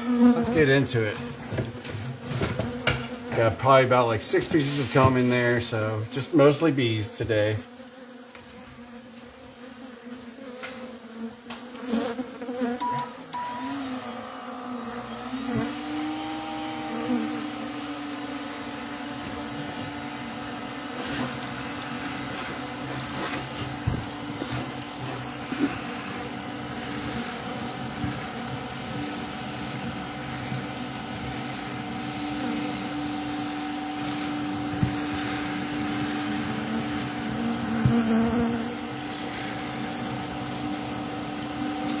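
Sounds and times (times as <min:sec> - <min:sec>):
bees buzzing: 0:00.0 - 0:42.0
small electric motor humming: 0:12.5 - 0:42.0.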